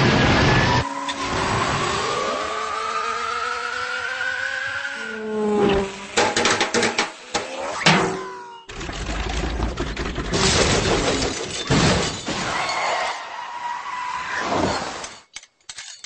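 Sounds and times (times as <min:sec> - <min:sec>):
sharp clicks and knocks: 0:06.2 - 0:08.0.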